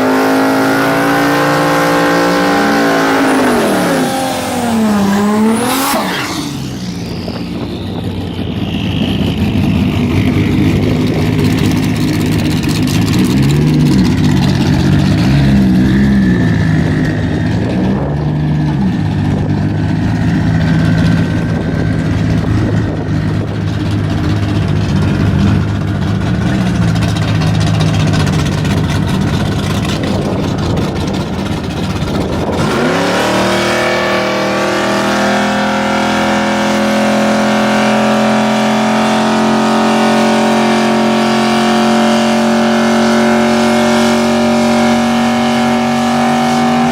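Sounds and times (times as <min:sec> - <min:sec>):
car engine lumpy idle: 0:06.3 - 0:33.7.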